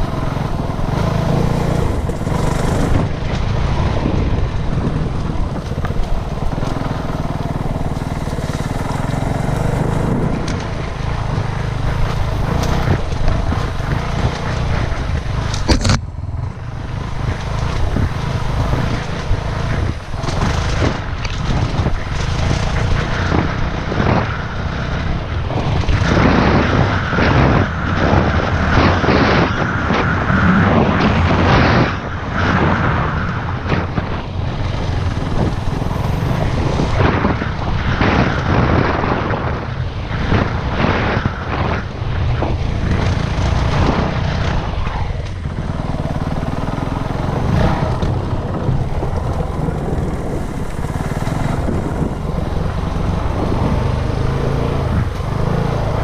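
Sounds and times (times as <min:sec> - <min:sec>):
dirt bike engine revving: 0:00.0 - 0:15.9, 0:42.8 - 0:56.0
dense rushing noise: 0:00.0 - 0:56.0.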